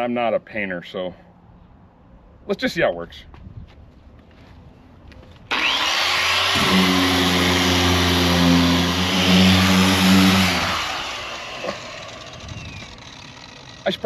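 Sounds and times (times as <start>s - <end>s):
electric sander running: 5.5s - 14.0s.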